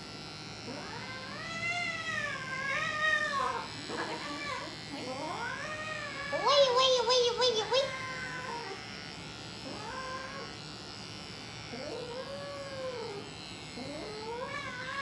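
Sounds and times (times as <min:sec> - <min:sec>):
cat meowing: 0:05.4 - 0:08.8, 0:13.9 - 0:15.0.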